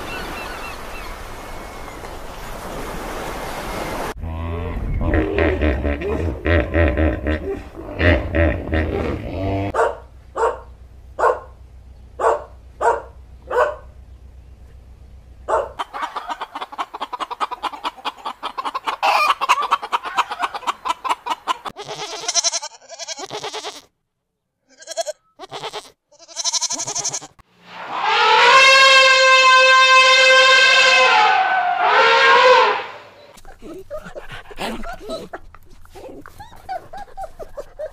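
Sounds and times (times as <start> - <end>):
hippo grunting: 4.2 - 9.8, 33.4 - 37.9
hens clucking and squawking: 4.8 - 9.8, 15.8 - 22.6, 27.8 - 37.9
elephant trumpeting: 26.4 - 33.3.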